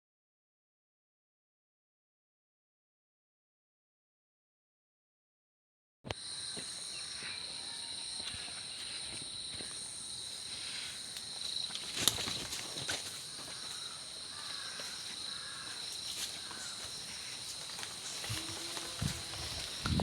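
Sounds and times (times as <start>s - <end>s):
crickets chirring: 6.1s - 20.0s.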